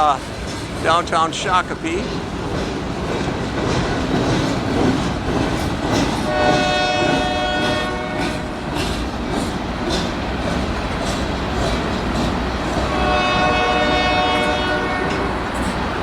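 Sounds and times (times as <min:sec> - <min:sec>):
freight train rumbling past: 0:00.0 - 0:16.0
wheels clicking over rail joints: 0:00.0 - 0:16.0
train horn blast: 0:06.2 - 0:08.5, 0:12.9 - 0:15.4.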